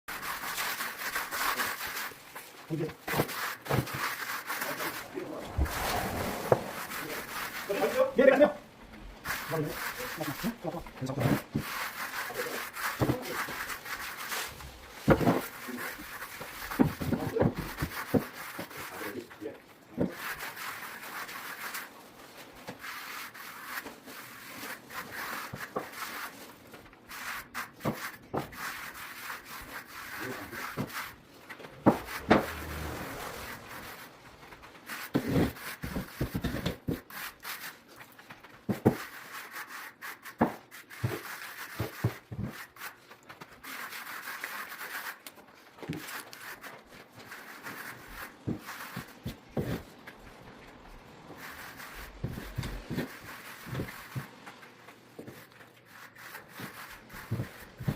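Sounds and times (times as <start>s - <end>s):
hand trowel scraping gravel: 0.1s - 57.9s.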